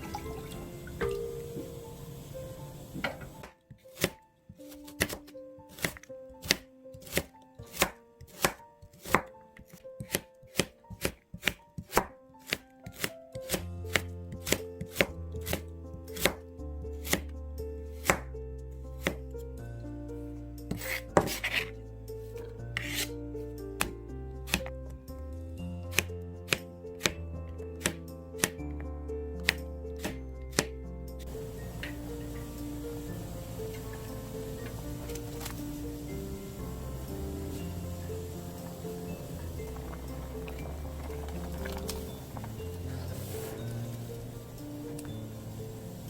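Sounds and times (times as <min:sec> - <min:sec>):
background music held notes: 0:00.0 - 0:46.0
low bass line: 0:30.9 - 0:46.0.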